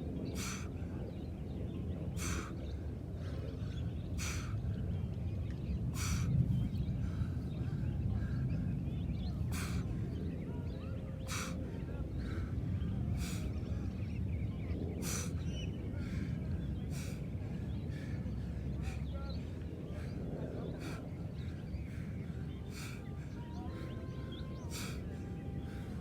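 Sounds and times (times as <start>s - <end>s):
birds chirping faintly: 0.0s - 26.0s
sharp exhaled breaths: 0.3s - 0.8s, 2.1s - 4.7s, 5.9s - 7.4s, 9.4s - 10.0s, 11.2s - 12.5s, 13.1s - 14.0s, 15.0s - 26.0s.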